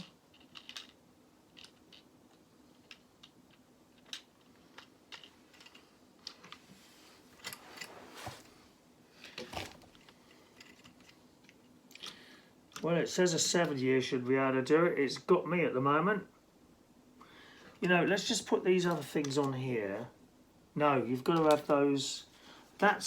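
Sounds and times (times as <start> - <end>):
plastic toy bricks clicking: 0.0 - 6.6.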